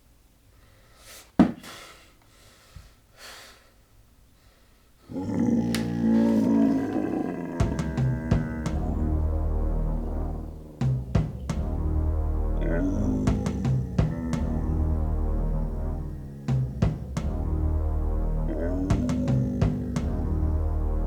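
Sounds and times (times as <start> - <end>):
creature roar: 5.1 - 9.3, 12.6 - 15.0, 18.5 - 20.5
dramatic music: 5.8 - 21.0
deep drum hits: 7.4 - 20.7
sharp hit: 7.6 - 20.4.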